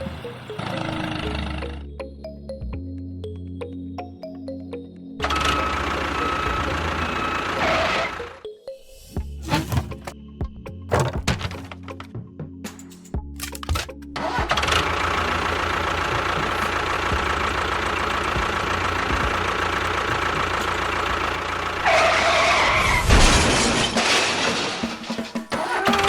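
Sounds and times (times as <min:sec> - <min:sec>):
small machine motor throbbing: 0:00.0 - 0:01.9, 0:05.2 - 0:08.4, 0:14.2 - 0:21.4.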